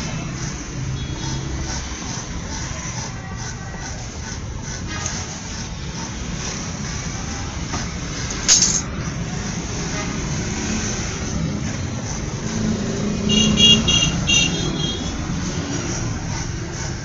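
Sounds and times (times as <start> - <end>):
road traffic noise: 0.0 - 17.0
sharp hiss: 8.3 - 8.9
vehicle horn blasts: 13.3 - 15.1.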